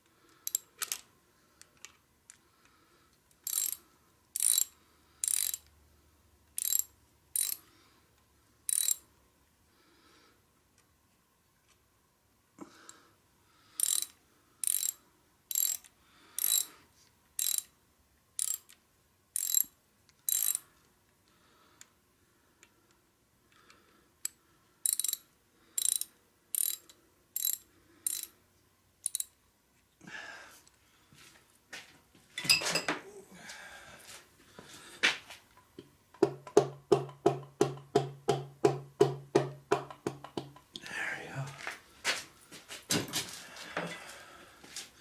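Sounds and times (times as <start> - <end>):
ratchet clicking: 0.4 - 1.0, 3.4 - 3.8, 4.4 - 5.7, 6.6 - 7.6, 8.7 - 9.0, 13.8 - 16.7, 17.4 - 17.7, 18.4 - 18.8, 19.4 - 19.7, 20.3 - 20.6, 24.2 - 25.2, 25.8 - 28.3, 29.0 - 29.3
tools knocking: 36.2 - 40.7.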